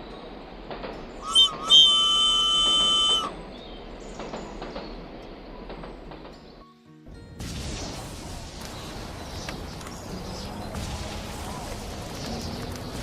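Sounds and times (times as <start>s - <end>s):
high whistle-like horn: 1.2s - 3.4s.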